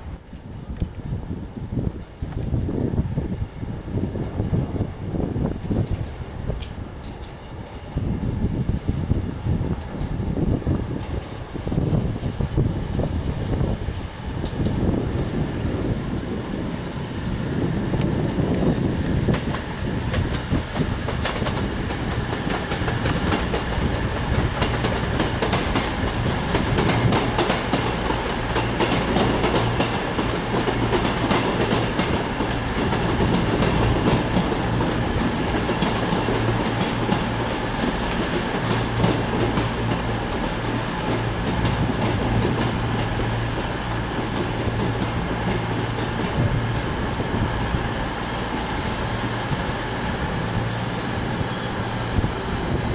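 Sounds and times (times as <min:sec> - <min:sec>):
train wheels clicking over rail joints: 0:05.6 - 0:07.9, 0:17.9 - 0:52.9.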